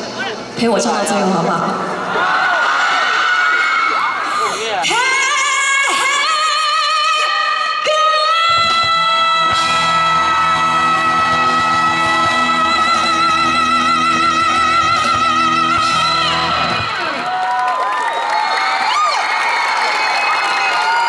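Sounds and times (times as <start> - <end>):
woman singing a long high note: 4.9 - 16.9.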